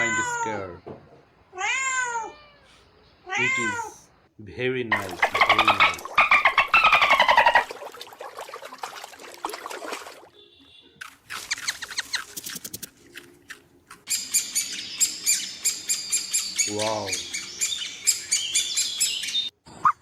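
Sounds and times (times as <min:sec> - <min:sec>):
birds chirping and squawking: 0:05.0 - 0:07.7, 0:14.1 - 0:20.0.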